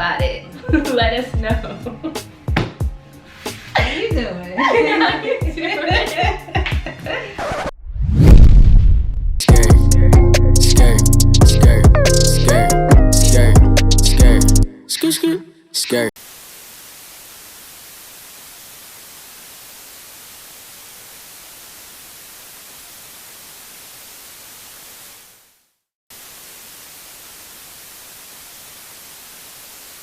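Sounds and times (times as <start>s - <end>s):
steady static hiss: 16.2s - 30.0s.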